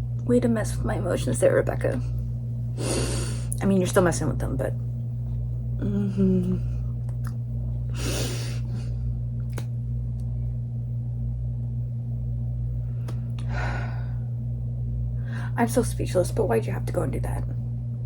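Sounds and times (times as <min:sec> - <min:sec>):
low steady hum: 0:00.0 - 0:18.0
woman breathing heavily: 0:02.8 - 0:03.5, 0:07.9 - 0:09.0, 0:13.4 - 0:14.4.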